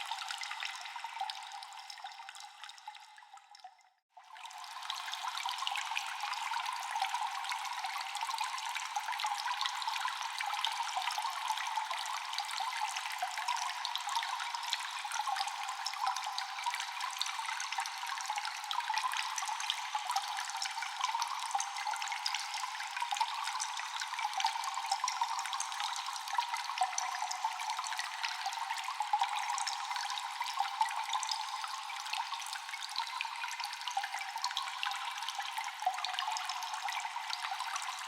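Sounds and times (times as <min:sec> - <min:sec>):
water dripping: 0:00.0 - 0:04.0.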